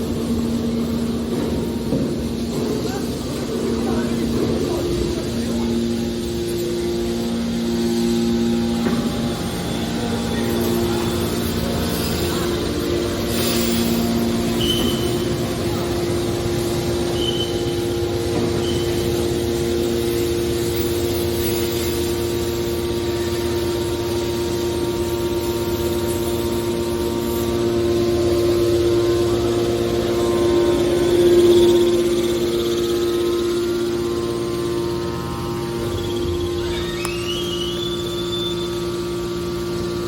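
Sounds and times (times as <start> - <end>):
hydraulic power unit humming: 0.0 - 40.0
high squeaks: 13.3 - 15.5, 35.7 - 39.0.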